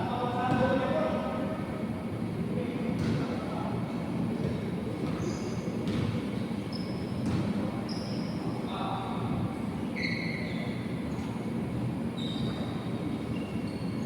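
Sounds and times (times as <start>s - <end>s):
shoes squeaking on court floor: 4.4s - 8.5s, 9.8s - 11.4s, 12.2s - 14.0s.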